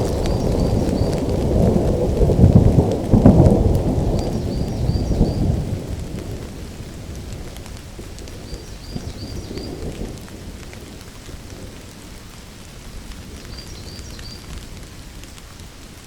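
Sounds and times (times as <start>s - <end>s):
thunder rolling: 0.0s - 11.9s
rain pattering: 0.0s - 16.0s.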